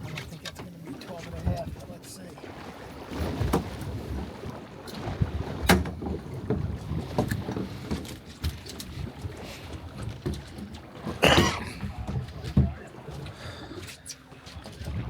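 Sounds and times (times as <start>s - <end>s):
wind buffeting microphone: 14.6s - 15.0s.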